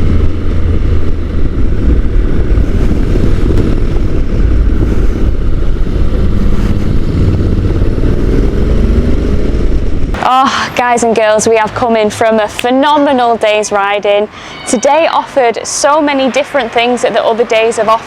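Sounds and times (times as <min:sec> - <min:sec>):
motorcycle engine running: 0:00.0 - 0:10.5
wind rush on microphone: 0:00.0 - 0:13.0.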